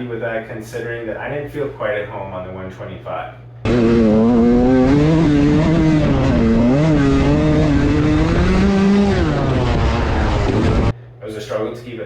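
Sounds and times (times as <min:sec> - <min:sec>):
dirt bike engine revving: 0:03.6 - 0:10.9.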